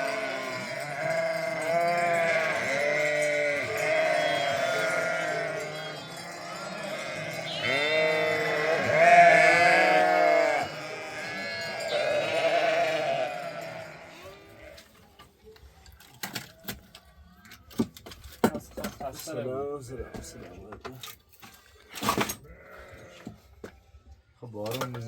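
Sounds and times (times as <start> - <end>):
sheep bleating: 0.0 - 14.9, 22.4 - 23.3.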